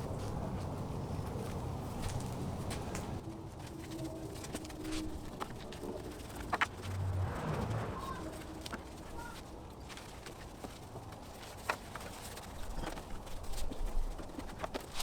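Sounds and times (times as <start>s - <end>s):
dove cooing: 0.0s - 3.2s.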